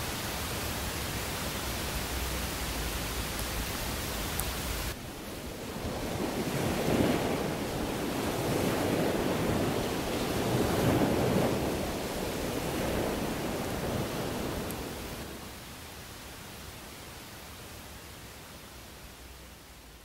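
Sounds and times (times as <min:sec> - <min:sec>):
wind: 0:00.0 - 0:20.0
surf breaking on beach: 0:04.9 - 0:15.5.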